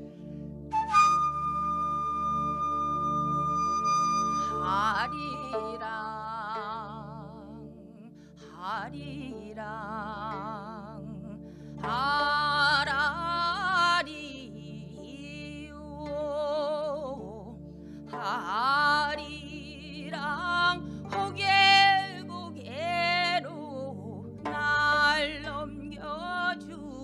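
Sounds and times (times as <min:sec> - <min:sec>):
sustained accompaniment: 0:00.0 - 0:27.0
solo voice singing with vibrato: 0:04.5 - 0:17.5.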